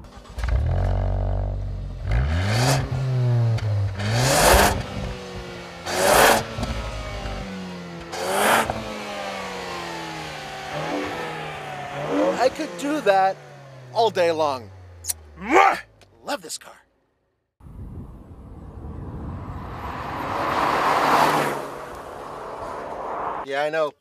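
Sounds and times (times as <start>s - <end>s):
car exhaust revving: 0.0s - 15.6s.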